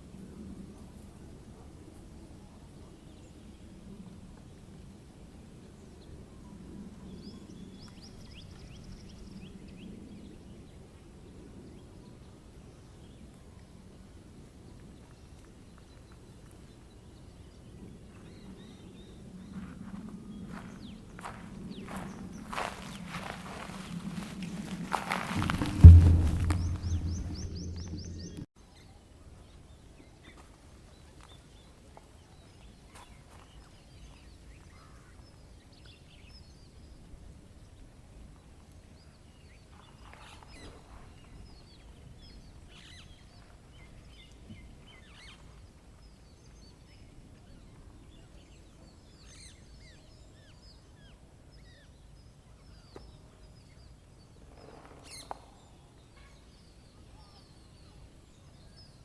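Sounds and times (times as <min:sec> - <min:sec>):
small birds chirping: 0:14.7 - 0:28.4
steady low rumble: 0:21.1 - 0:28.5.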